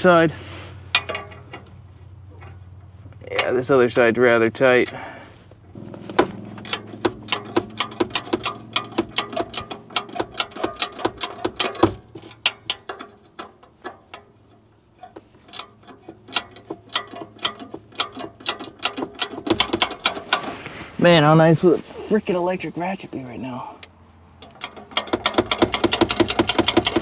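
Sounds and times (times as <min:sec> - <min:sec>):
hand ratchet clicking: 0:05.7 - 0:20.5, 0:24.4 - 0:27.0.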